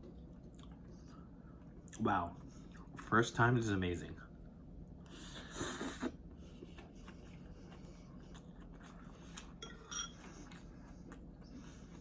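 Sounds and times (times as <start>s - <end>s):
soft chewing clicks: 6.6s - 9.6s, 10.5s - 12.0s.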